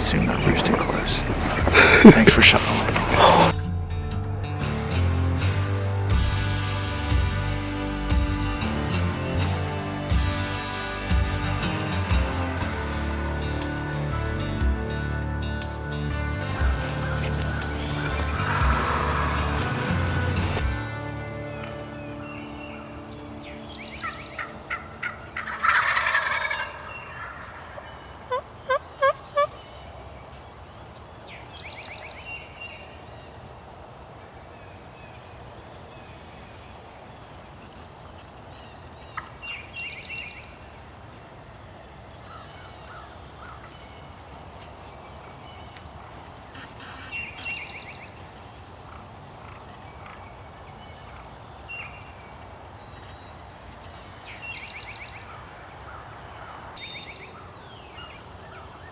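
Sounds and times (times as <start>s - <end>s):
turkey gobbling: 16.6s - 20.6s, 24.0s - 29.6s.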